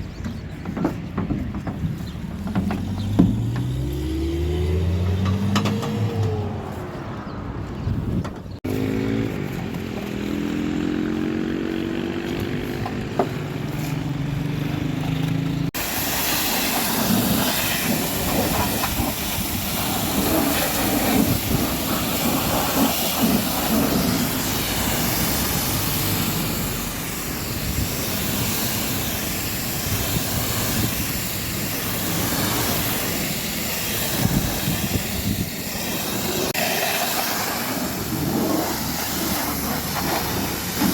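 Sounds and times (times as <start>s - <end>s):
water jet spattering on vehicle: 15.8s - 40.9s.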